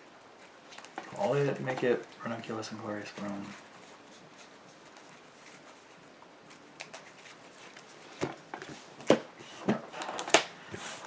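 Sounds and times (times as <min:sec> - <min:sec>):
cards rustling: 0:00.4 - 0:09.2.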